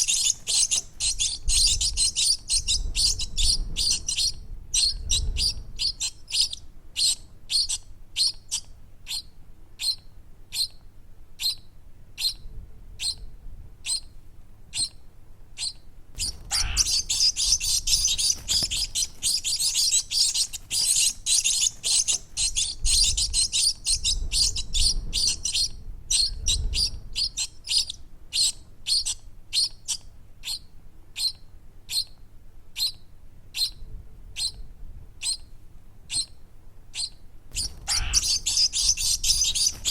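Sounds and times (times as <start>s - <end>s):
baby birds chirping: 0.0s - 10.8s, 11.4s - 11.6s, 15.6s - 30.6s, 32.8s - 33.8s, 37.0s - 39.9s.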